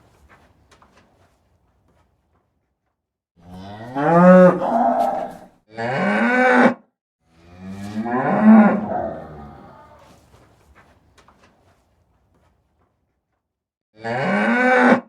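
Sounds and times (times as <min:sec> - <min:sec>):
cow mooing: 0:03.4 - 0:06.7, 0:07.3 - 0:10.2.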